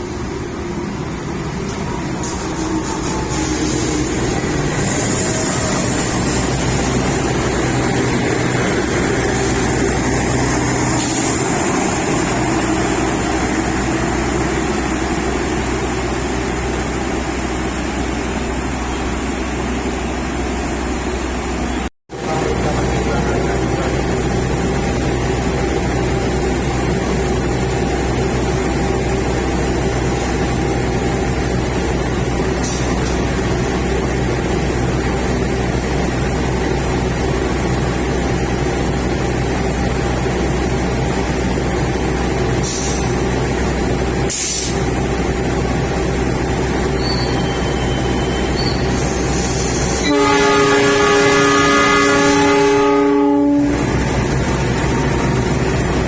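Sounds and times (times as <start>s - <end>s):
train running hum: 0.0s - 56.0s
train horn blast: 49.9s - 53.8s.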